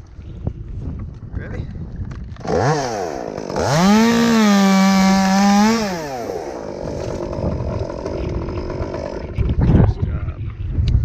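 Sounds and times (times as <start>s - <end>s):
chainsaw revving while cutting: 2.4s - 9.4s.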